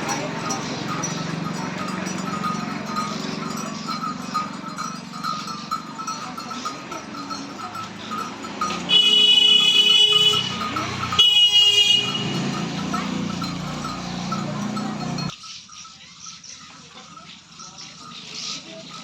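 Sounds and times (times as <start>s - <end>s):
street noise: 0.0s - 19.0s
vehicle horn honking: 8.8s - 12.8s.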